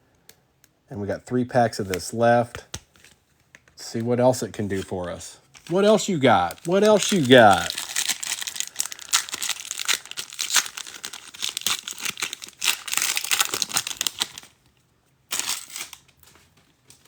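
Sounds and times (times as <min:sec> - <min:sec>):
wrapper crinkling: 0:04.7 - 0:14.7, 0:15.3 - 0:17.0
wrapper being torn open: 0:05.6 - 0:14.6, 0:15.3 - 0:17.0.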